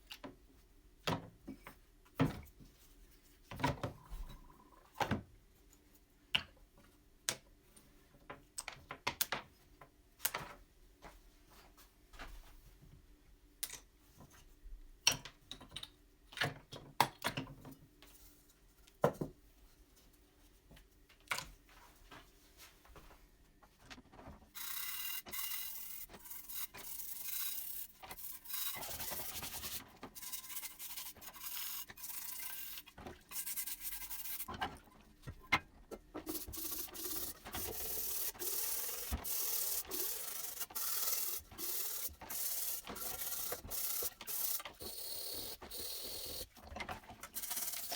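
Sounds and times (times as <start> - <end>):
parts clicking and knocking: 24.6 - 47.9.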